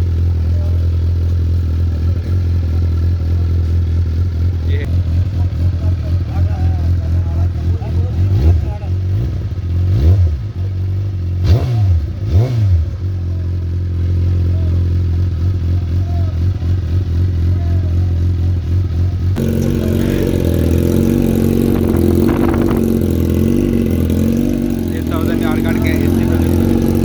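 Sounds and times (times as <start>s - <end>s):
busier engine idle: 0.0s - 11.4s, 12.8s - 27.0s
motorcycle engine idling: 0.0s - 11.4s, 12.0s - 27.0s
engine blips: 19.3s - 27.0s.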